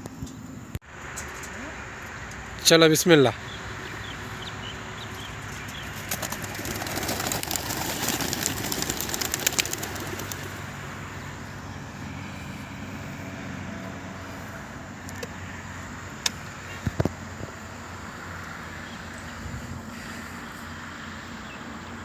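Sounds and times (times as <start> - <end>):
low engine hum: 3.4 - 22.0
pigeons wings flapping: 5.5 - 11.0.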